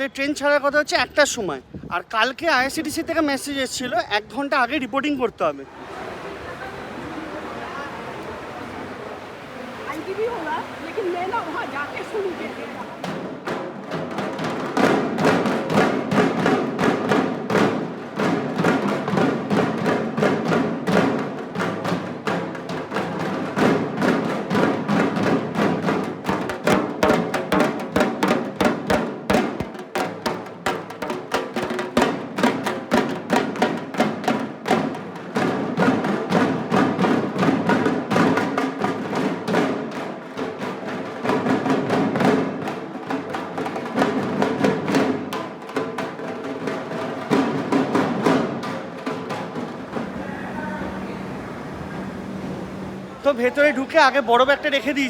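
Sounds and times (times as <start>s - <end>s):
percussion music with fast drumming: 9.9s - 51.4s.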